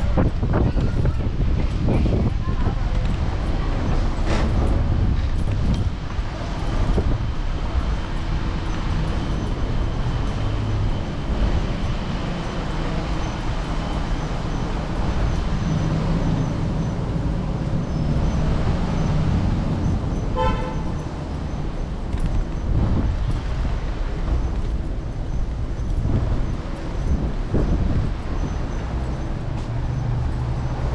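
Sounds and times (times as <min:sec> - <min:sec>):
wind and road noise: 0:00.0 - 0:30.9
short horn toot: 0:20.3 - 0:20.9.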